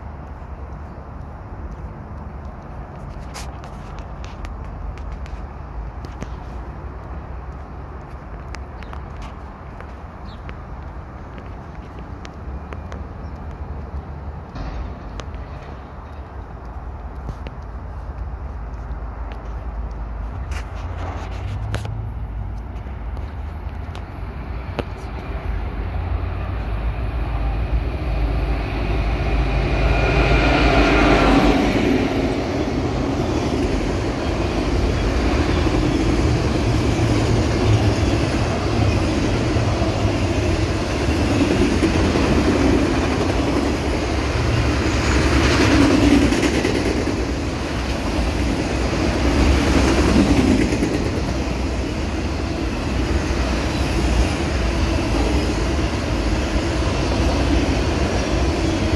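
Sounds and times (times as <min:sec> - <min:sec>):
freight train passing: 0:00.0 - 0:58.9.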